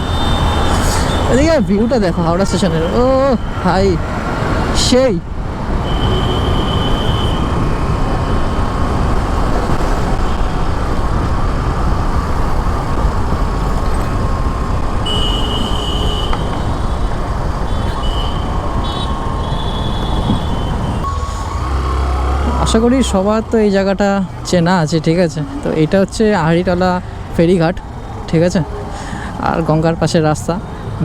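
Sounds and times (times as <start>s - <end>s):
wind and road rush: 0.0s - 31.0s
motorcycle engine rumble: 7.4s - 30.2s.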